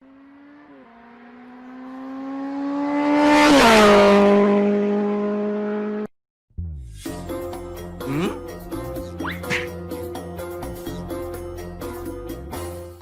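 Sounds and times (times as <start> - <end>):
vehicle engine passing by: 0.0 - 7.1.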